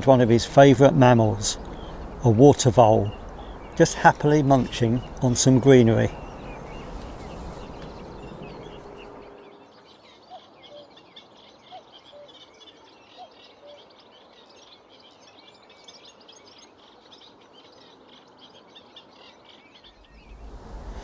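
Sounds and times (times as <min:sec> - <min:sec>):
distant cuckoo calling: 0:00.0 - 0:14.0, 0:19.8 - 0:21.0
songbirds chattering: 0:00.0 - 0:21.0.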